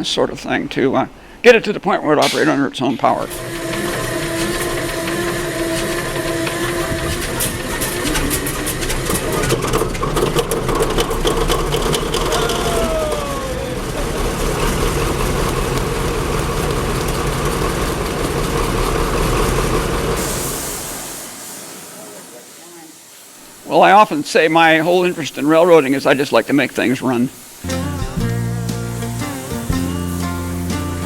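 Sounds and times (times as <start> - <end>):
high air hiss: 1.1 - 1.6, 2.2 - 11.0, 11.7 - 17.8, 18.8 - 31.0
locomotive engine droning: 3.2 - 22.3, 23.0 - 31.0
falling whine: 3.2 - 31.0
rapid clicks and rattles: 3.3 - 20.2.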